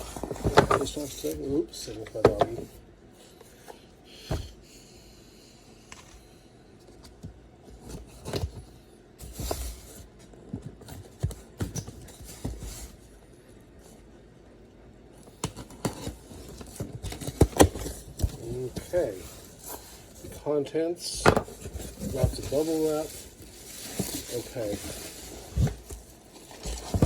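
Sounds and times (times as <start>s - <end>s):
cardboard and packing rustling: 0.0s - 3.7s, 6.8s - 13.2s, 15.2s - 27.0s
cardboard box knocks and scrapes: 25.3s - 27.0s.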